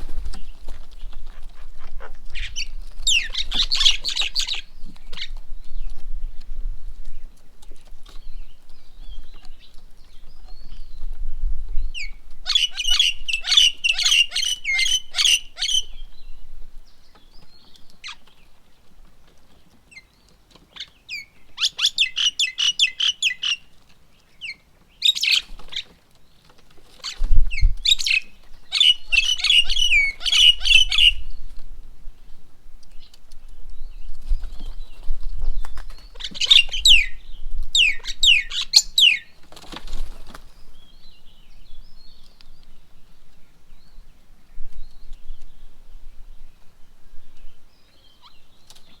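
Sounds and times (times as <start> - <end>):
birds chattering: 0.0 - 6.4, 7.0 - 49.0
downward-sliding bird calls: 27.0 - 31.3.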